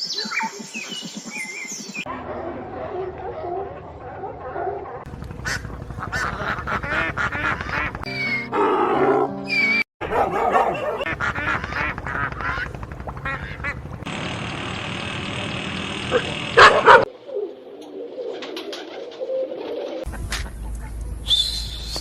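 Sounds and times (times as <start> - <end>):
ducks quacking: 5.4 - 8.1, 10.5 - 13.8.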